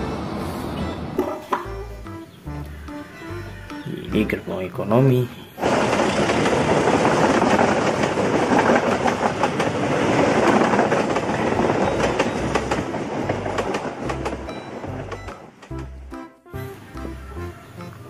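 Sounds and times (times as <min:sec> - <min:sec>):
train wheels rumbling on rail: 0:05.0 - 0:18.0
clickety-clack over rail joints: 0:05.6 - 0:18.0.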